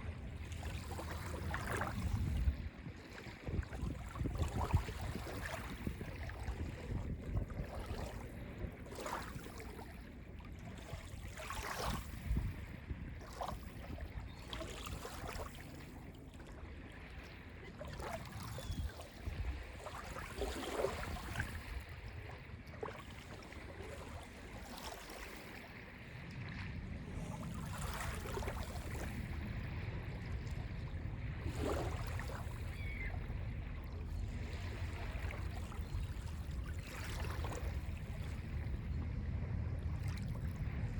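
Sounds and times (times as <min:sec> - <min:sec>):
waves lapping on a beach: 0:00.0 - 0:40.9
water splashing: 0:13.3 - 0:38.8
low steady rumble: 0:21.1 - 0:40.9.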